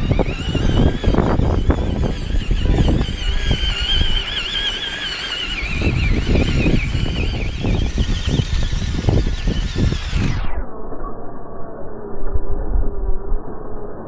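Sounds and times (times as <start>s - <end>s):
small electric motor whining: 0.0s - 10.5s
low rumbling: 0.0s - 14.0s.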